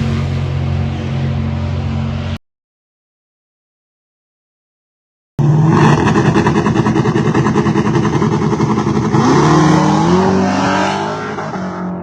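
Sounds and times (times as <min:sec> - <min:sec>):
car engine revving: 0:00.0 - 0:02.4, 0:05.4 - 0:12.0.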